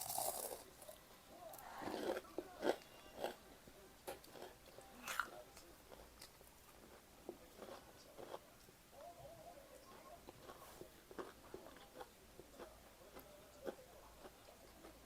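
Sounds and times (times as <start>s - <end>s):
chewing with crisp crunches: 1.6s - 3.4s, 4.1s - 8.7s, 9.9s - 15.0s.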